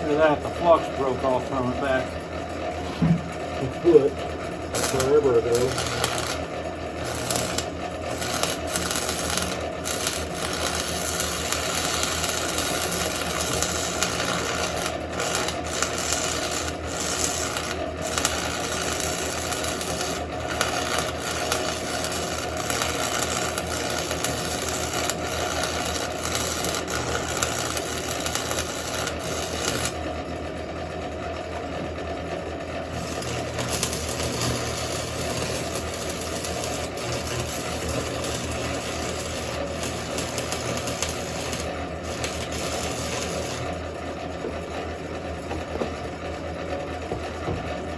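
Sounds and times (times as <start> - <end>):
welding arc crackling: 4.7 - 30.0, 32.9 - 43.8.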